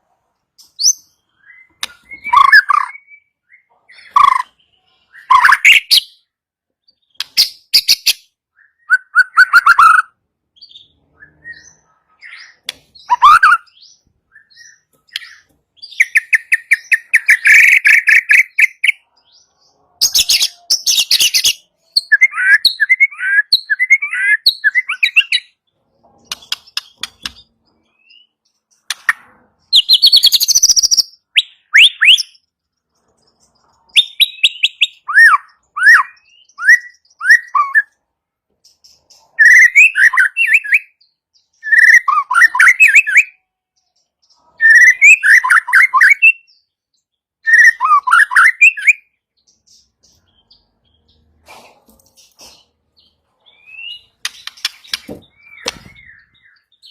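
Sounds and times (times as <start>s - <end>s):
bird singing whistled phrases: 0.8s - 6.2s, 7.4s - 19.0s, 20.1s - 25.6s, 29.8s - 32.4s, 33.9s - 38.0s, 39.4s - 41.0s, 41.6s - 43.4s, 44.6s - 46.6s, 47.4s - 49.2s, 55.0s - 56.9s.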